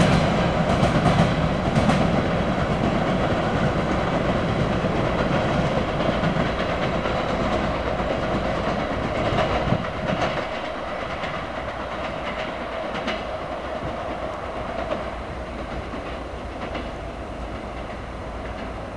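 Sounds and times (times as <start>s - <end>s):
train wheels clicking over joints: 0.0s - 18.9s.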